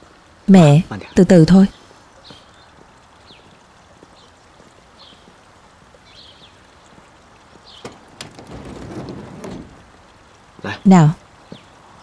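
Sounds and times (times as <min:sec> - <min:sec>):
faint outdoor ambience: 0:00.0 - 0:12.0
small bird chirping: 0:06.0 - 0:08.0.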